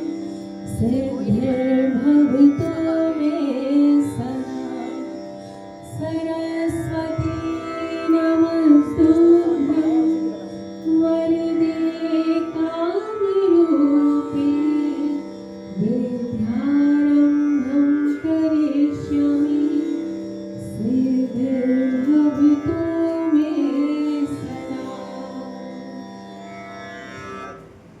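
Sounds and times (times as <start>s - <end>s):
woman singing: 0.0s - 26.3s
steady drone: 0.0s - 28.0s.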